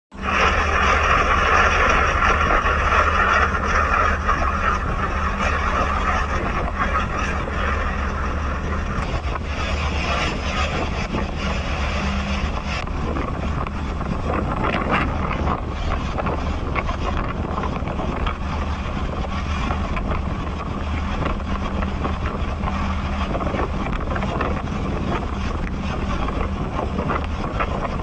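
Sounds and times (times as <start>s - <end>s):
boat engine running: 0.1s - 28.0s
rushing water: 0.1s - 28.0s
wind: 0.1s - 28.0s.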